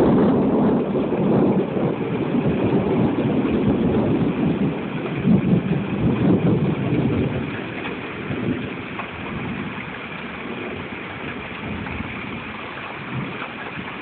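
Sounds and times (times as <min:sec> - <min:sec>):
rain: 0:00.0 - 0:14.0
wind on microphone: 0:00.0 - 0:14.0.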